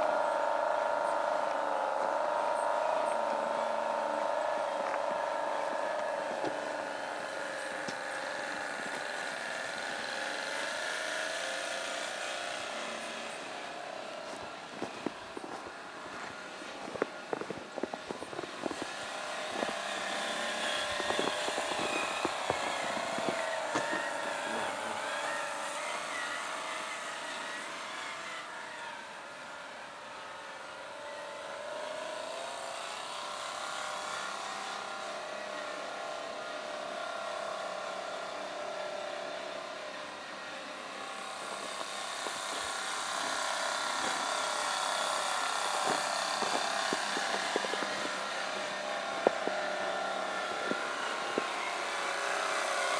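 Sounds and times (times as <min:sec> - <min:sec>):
electric motor and gears whining: 0:00.0 - 0:52.9.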